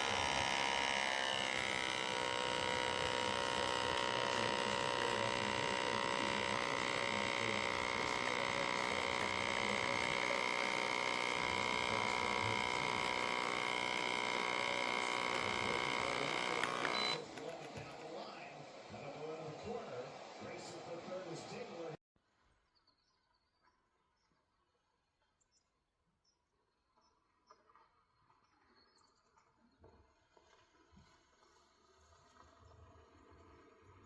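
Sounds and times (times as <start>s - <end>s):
small electric pump humming: 0.0s - 18.2s.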